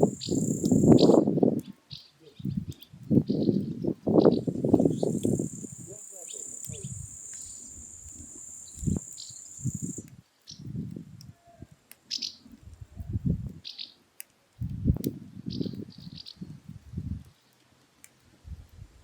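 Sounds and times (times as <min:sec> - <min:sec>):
insect trilling: 0:00.0 - 0:01.2, 0:04.3 - 0:10.1
sharp crackles: 0:00.0 - 0:18.4.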